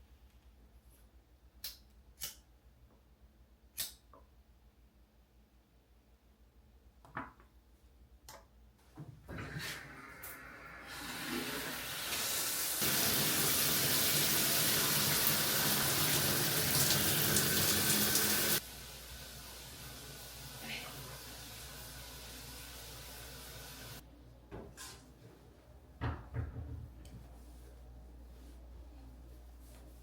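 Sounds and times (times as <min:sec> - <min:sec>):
tap water running: 0:09.3 - 0:24.0.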